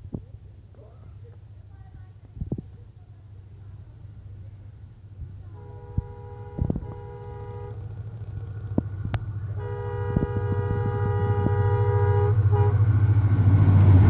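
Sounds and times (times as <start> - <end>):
diesel locomotive engine rumbling: 0.0 - 14.0
locomotive horn blast: 5.5 - 8.0, 9.4 - 14.0.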